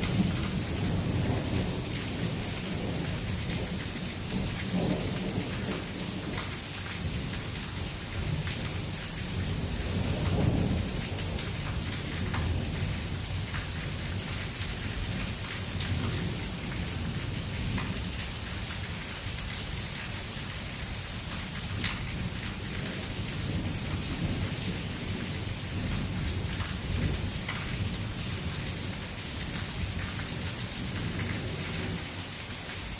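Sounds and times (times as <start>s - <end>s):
thunder rumbling: 0.0s - 6.3s
heavy rain pouring: 0.0s - 32.9s.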